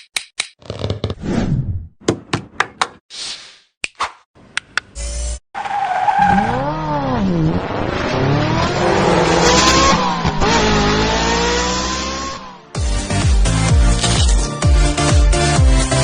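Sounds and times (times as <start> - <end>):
sports car engine revving: 6.3 - 12.6.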